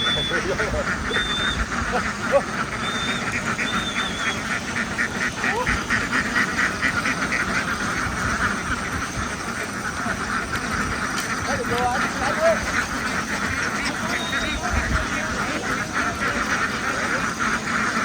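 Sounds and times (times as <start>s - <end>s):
flock of ducks quacking: 0.0s - 18.0s
high whistling notes: 2.8s - 4.5s.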